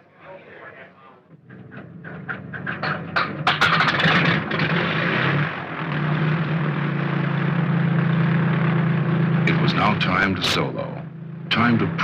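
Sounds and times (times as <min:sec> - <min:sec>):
aircraft piston engine starting: 0:01.5 - 0:07.8.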